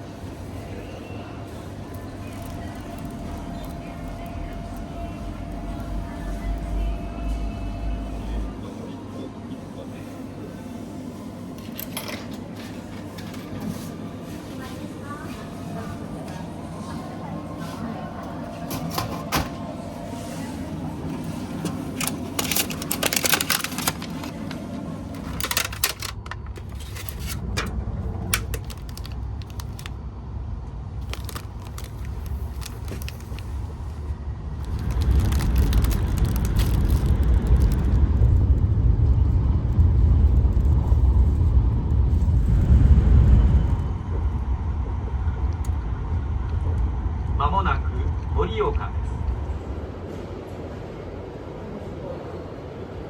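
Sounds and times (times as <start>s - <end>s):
moving train rumble: 0.0s - 9.4s, 15.0s - 53.0s
crinkling handling noises: 1.8s - 6.9s, 21.1s - 30.0s, 31.0s - 38.5s.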